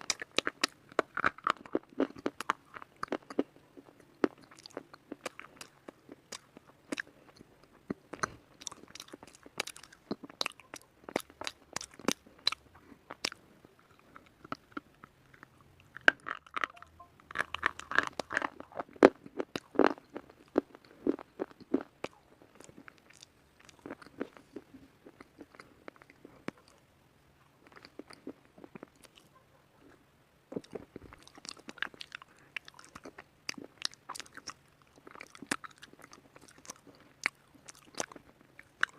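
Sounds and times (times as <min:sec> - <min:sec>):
person crunching slate pencil: 0:15.3 - 0:20.3.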